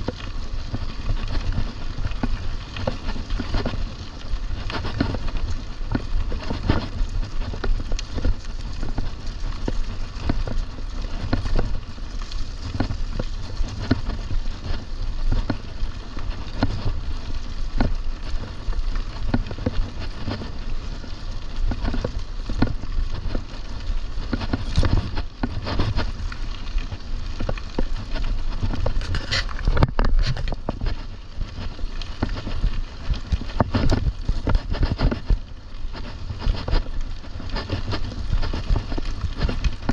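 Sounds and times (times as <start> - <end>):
bike clicks and rattles: 0.0 - 39.9
mountain bike tyres rumbling: 0.0 - 39.9.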